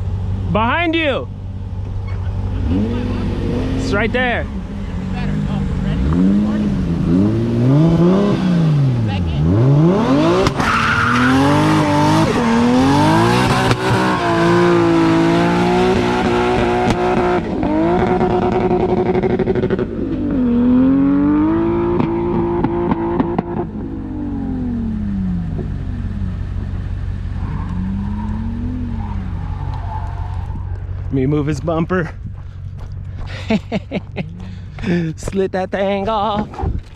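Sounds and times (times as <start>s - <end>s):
car engine revving: 0.0s - 35.4s
tyre screech: 2.0s - 3.0s, 10.4s - 12.5s, 27.4s - 30.9s.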